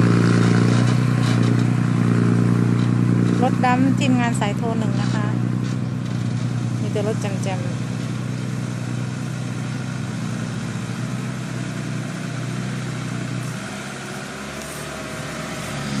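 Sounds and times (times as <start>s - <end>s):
dump truck engine running: 0.0s - 16.0s.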